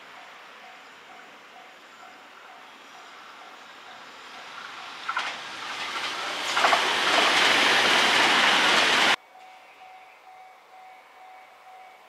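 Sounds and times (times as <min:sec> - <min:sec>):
electric train wheels rolling: 0:04.2 - 0:09.2.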